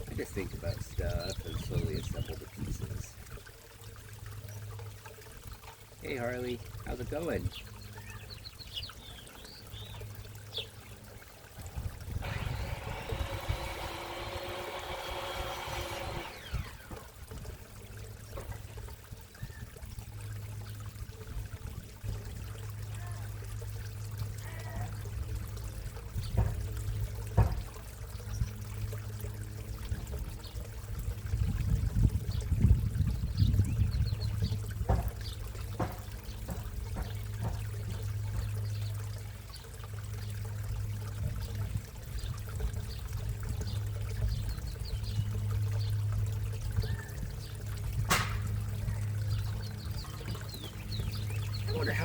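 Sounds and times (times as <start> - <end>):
low steady hum: 0.0 - 52.0
water trickling into pond: 0.0 - 52.0
sharp knocks: 27.3 - 27.7, 35.8 - 37.7, 48.1 - 48.5.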